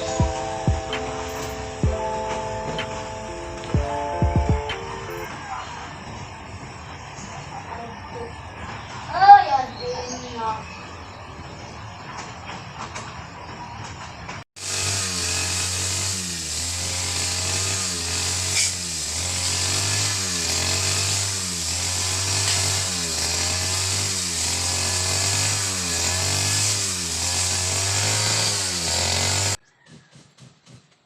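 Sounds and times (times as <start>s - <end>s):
small engine with cycling pitch: 14.6s - 29.6s.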